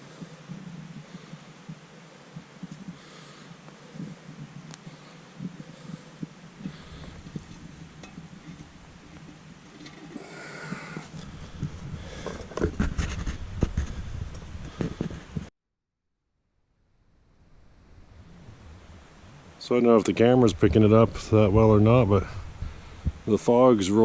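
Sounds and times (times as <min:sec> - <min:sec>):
person breathing: 0:00.0 - 0:01.7, 0:02.3 - 0:07.8, 0:10.1 - 0:12.6, 0:13.8 - 0:15.3, 0:22.3 - 0:23.3
rustling: 0:00.0 - 0:15.5.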